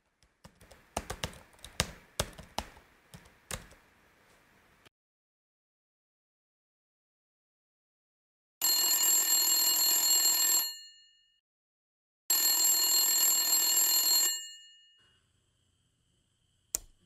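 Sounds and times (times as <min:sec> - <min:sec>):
mobile phone ringing: 0:08.6 - 0:11.2, 0:12.3 - 0:15.0.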